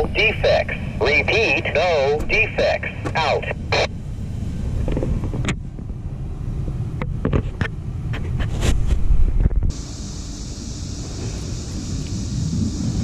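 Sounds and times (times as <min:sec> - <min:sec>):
train rumbling past: 0:00.0 - 0:13.0
wind on microphone: 0:06.7 - 0:13.0.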